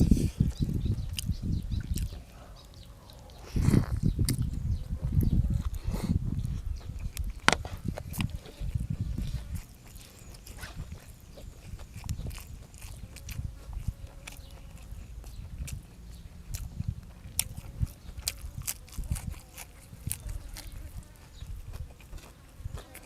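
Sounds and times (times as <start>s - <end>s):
person chewing with wet smacks: 0.0s - 23.0s.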